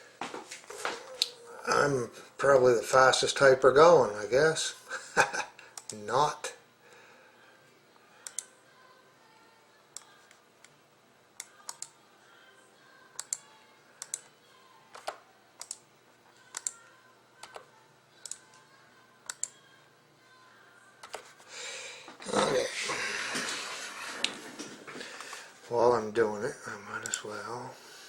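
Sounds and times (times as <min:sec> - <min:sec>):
computer keyboard key clicks: 0:11.4 - 0:11.9, 0:14.9 - 0:15.8, 0:16.5 - 0:16.7, 0:19.2 - 0:19.5, 0:21.0 - 0:21.2.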